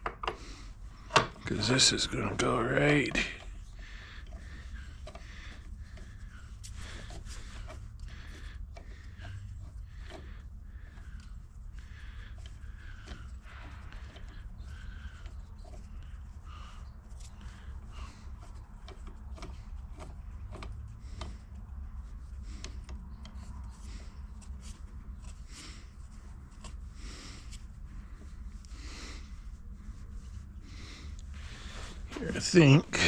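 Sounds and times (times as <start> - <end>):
pipe fittings and tools clicking: 0.0 - 1.5, 3.0 - 26.8
steady low hum: 0.0 - 33.0.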